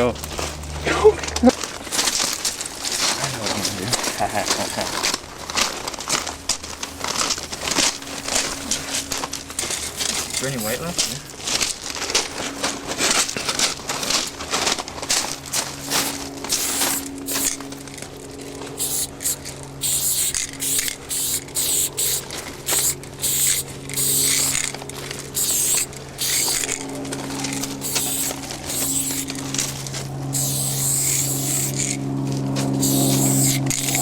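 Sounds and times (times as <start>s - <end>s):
steady low hum: 0.0s - 34.0s
spray paint cans hissing: 15.8s - 17.7s, 18.8s - 32.0s, 32.6s - 34.0s.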